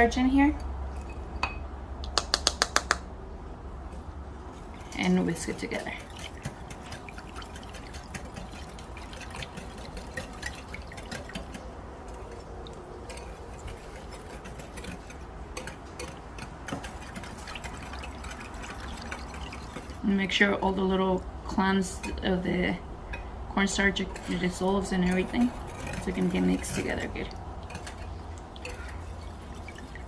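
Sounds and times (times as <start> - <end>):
liquid sloshing: 4.0 - 30.0
whisk clicking against bowl: 5.0 - 20.0, 24.4 - 28.9.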